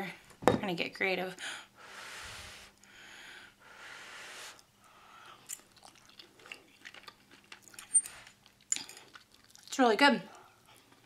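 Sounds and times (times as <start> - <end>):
person chewing food: 4.5 - 9.7, 10.3 - 11.0
wet mouth clicks and smacks: 5.4 - 9.7.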